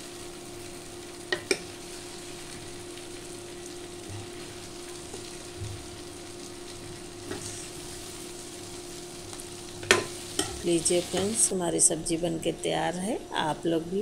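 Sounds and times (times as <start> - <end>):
steady hum: 0.0 - 14.0
vegetables sizzling in oil: 0.0 - 14.0.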